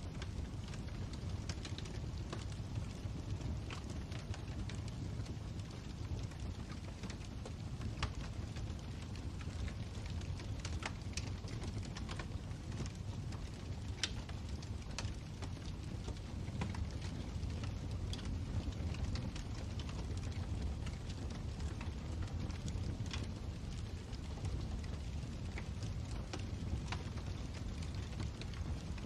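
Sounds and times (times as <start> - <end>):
burning wood crackling and popping: 0.0 - 29.0
low roar of flames: 0.0 - 29.0.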